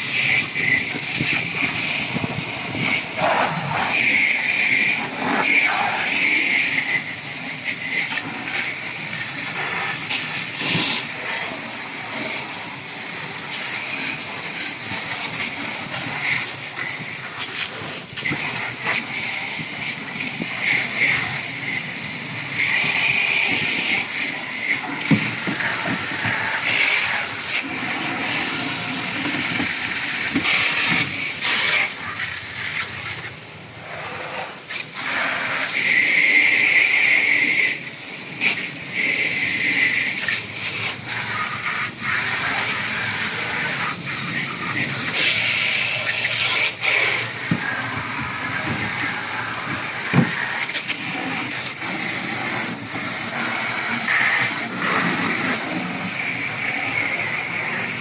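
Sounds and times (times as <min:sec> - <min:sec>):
steady hissing noise: 0:00.0 - 0:58.0.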